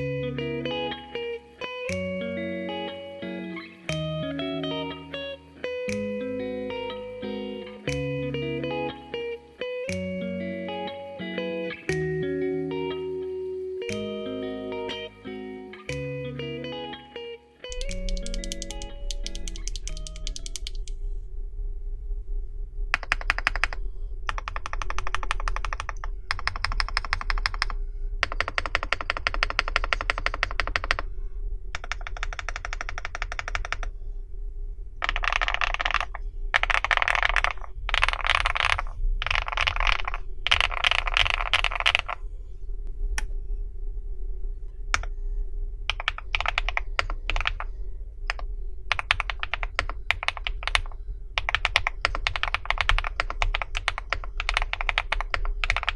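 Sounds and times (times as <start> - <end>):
typing on mechanical keyboard: 17.7 - 20.9, 23.0 - 31.0, 31.8 - 33.9, 35.0 - 42.2, 45.9 - 47.7, 48.3 - 55.9.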